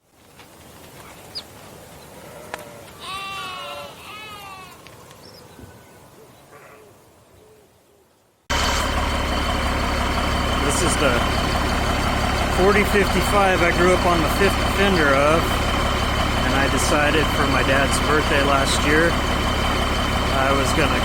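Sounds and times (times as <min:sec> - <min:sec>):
animal drawn-out pitched calls: 0:02.2 - 0:04.8
tractor diesel engine running: 0:08.5 - 0:21.0.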